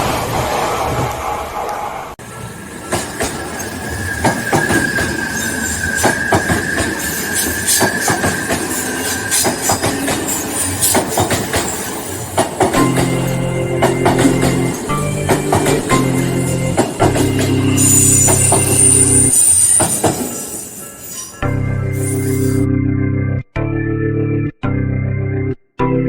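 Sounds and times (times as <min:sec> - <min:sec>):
train wheels squealing on rails: 0:00.4 - 0:22.6
wheels clicking over rail joints: 0:02.2 - 0:21.3.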